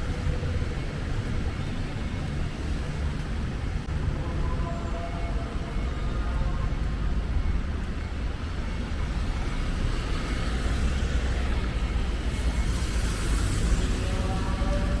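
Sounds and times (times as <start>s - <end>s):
road traffic rumble: 0.0s - 15.0s
tyres hissing on wet road: 10.1s - 15.0s.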